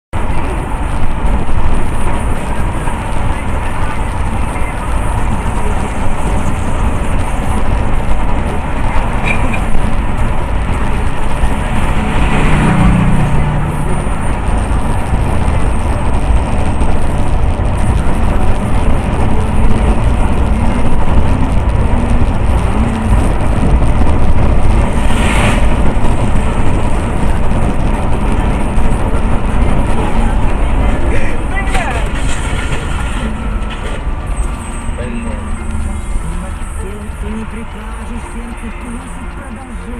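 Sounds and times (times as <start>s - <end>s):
highway traffic noise: 0.1s - 39.9s
vehicles passing: 0.2s - 39.9s.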